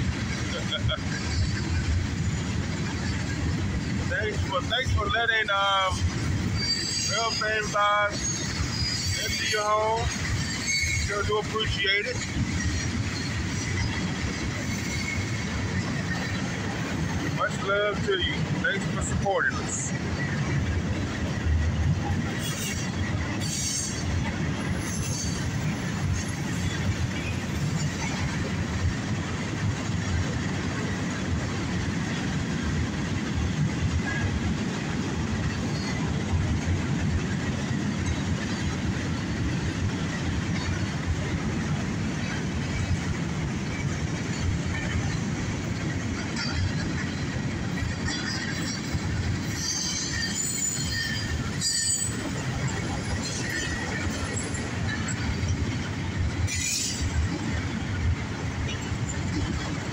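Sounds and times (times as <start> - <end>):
freight train wheels rumbling: 0.0 - 59.9
wheel squeals: 6.4 - 11.5, 47.8 - 55.6.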